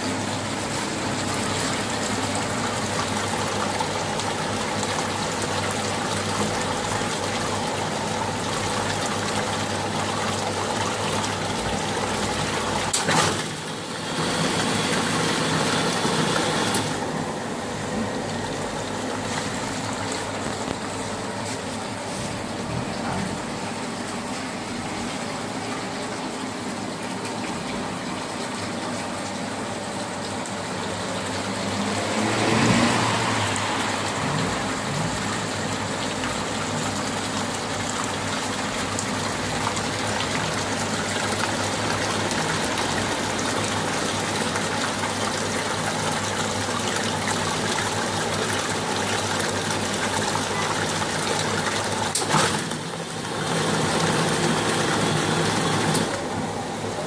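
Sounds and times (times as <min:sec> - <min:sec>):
pump running with water gushing: 0:00.0 - 0:57.0.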